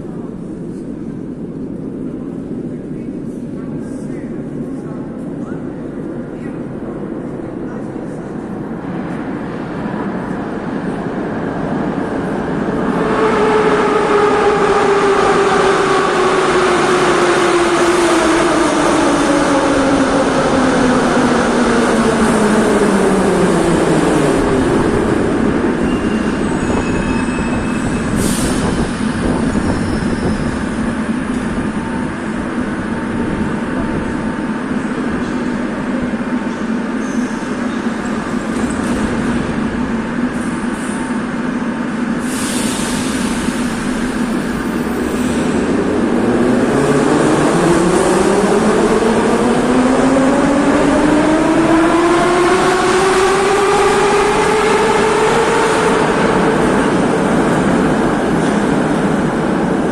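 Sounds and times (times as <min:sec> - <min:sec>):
stopped train humming: 0:00.0 - 0:59.9.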